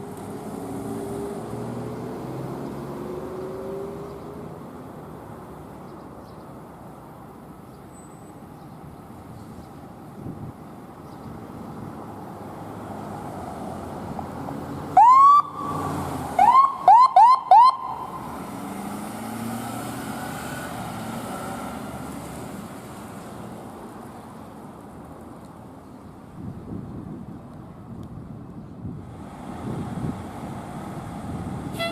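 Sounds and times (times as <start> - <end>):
vehicle passing: 0.0 - 5.8, 11.4 - 25.0, 28.9 - 31.9
emergency siren whoops and chirps: 15.0 - 18.4.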